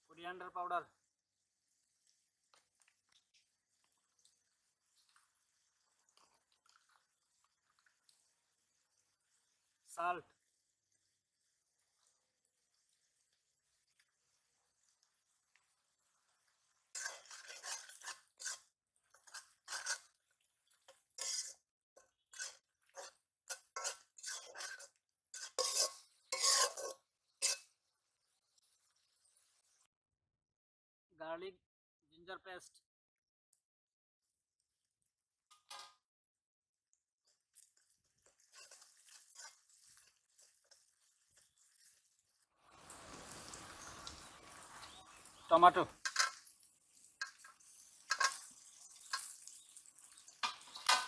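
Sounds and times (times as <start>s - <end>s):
frying hiss: 0.0s - 29.9s, 37.2s - 51.0s
metal spatula scraping pan: 16.9s - 27.7s, 38.2s - 42.1s, 46.0s - 46.5s, 47.2s - 49.4s, 50.1s - 51.0s.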